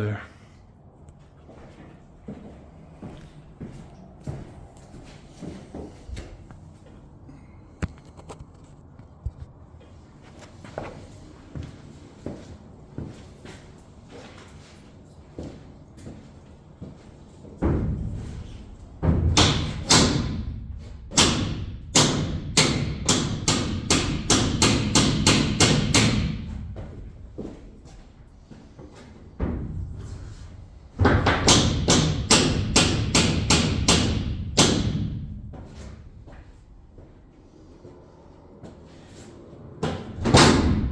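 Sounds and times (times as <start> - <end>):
hammer striking metal bracket: 21.1 - 26.5, 31.1 - 35.2.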